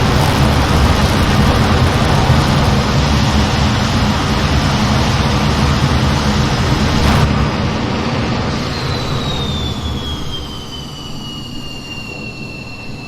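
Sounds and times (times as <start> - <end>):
jet engine rumble: 0.0 - 13.0
jet engine whine gliding down: 0.0 - 13.0.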